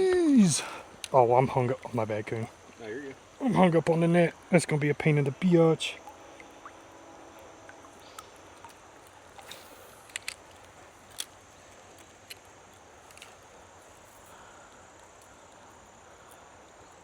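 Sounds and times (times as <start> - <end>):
faint creek hiss: 0.0 - 17.0.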